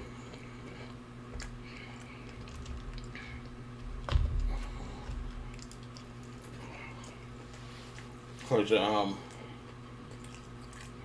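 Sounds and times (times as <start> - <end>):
man chewing food: 0.0 - 11.0
steady low hum: 0.0 - 11.0
knock and thump: 4.1 - 4.4.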